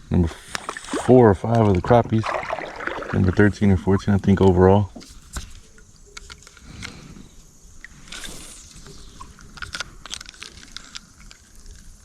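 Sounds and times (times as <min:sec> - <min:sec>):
water splash: 0:00.6 - 0:04.0.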